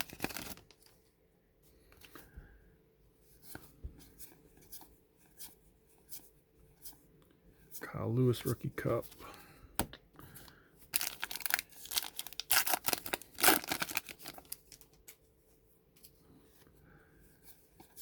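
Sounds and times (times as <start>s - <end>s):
wrapper tearing and crinkling: 0.0s - 0.8s, 11.0s - 15.2s.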